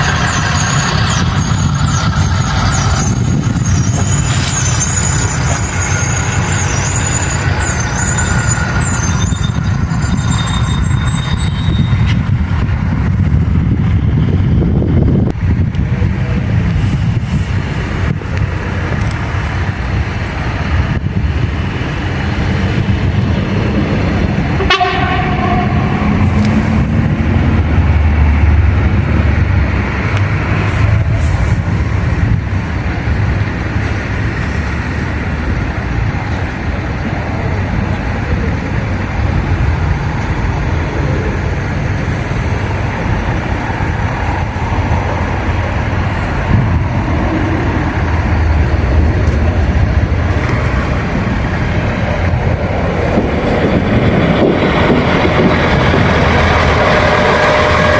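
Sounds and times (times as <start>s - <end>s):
train rumbling by: 0.0s - 57.9s
train horn blast: 24.5s - 26.9s, 56.5s - 57.9s.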